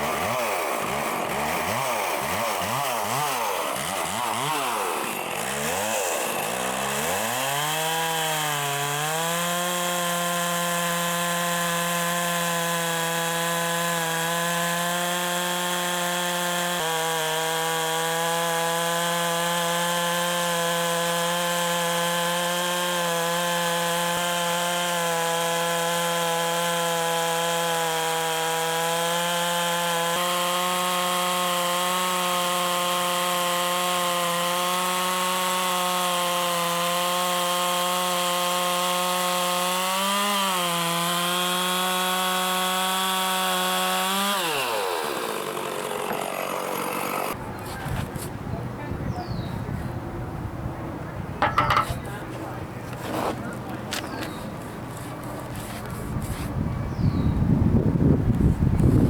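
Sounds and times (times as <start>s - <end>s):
small petrol engine running: 44.7s - 47.4s.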